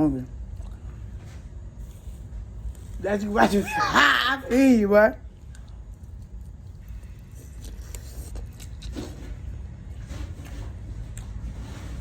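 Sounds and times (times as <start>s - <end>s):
crunchy chewing: 0.4s - 3.2s, 5.3s - 12.0s.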